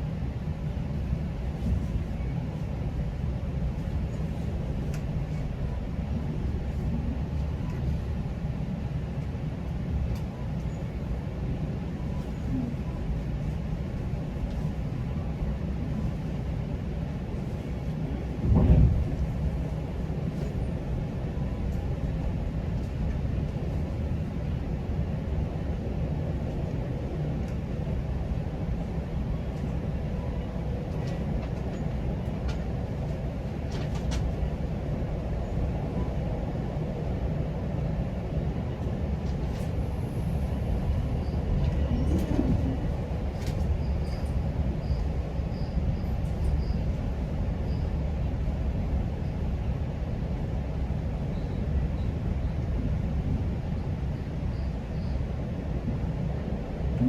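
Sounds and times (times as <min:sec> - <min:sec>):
train rumbling on track: 0:00.0 - 0:57.0
light track clicks: 0:03.7 - 0:05.6, 0:07.4 - 0:08.0, 0:09.2 - 0:11.0, 0:18.4 - 0:23.7, 0:26.5 - 0:27.8, 0:29.4 - 0:36.2, 0:40.5 - 0:47.8.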